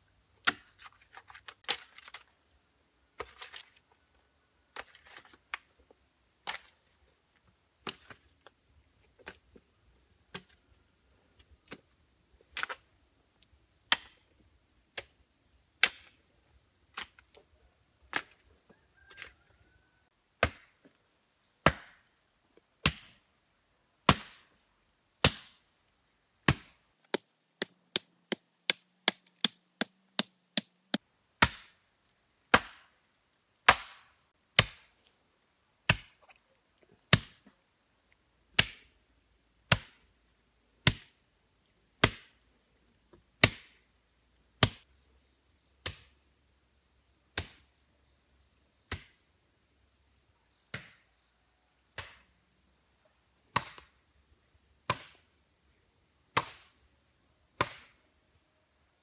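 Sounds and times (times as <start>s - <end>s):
axe chopping wood: 20.4s - 20.8s, 21.7s - 22.0s, 22.8s - 23.2s, 24.1s - 24.5s, 26.5s - 30.7s, 31.4s - 31.7s, 32.5s - 32.8s, 33.7s - 34.9s.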